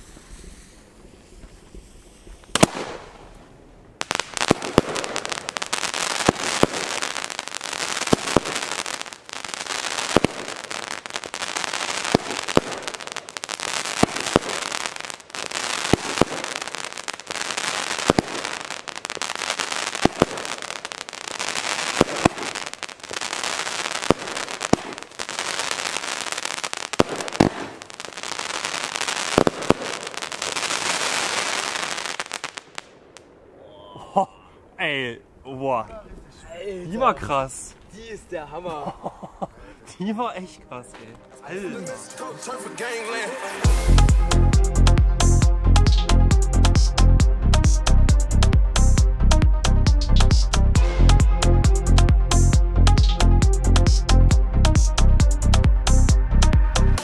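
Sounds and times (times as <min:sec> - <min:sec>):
firework bangs: 0:00.0 - 0:33.5
firework crackling: 0:00.0 - 0:33.6, 0:41.6 - 0:47.0.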